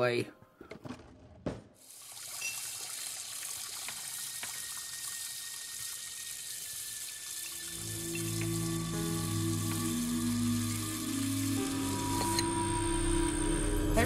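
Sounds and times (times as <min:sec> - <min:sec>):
tap water running into sink: 0:01.8 - 0:12.6
low sustained music notes: 0:07.7 - 0:14.0.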